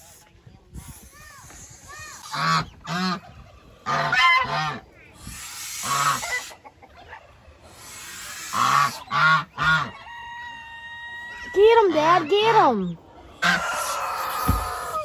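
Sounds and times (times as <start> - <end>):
geese honking: 2.2 - 7.1, 7.7 - 10.3, 11.2 - 15.0.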